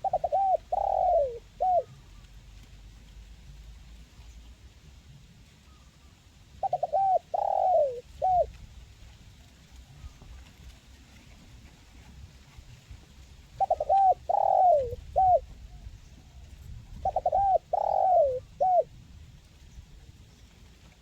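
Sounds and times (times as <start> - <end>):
dove cooing: 0.0 - 2.0, 6.6 - 8.6, 13.6 - 19.0.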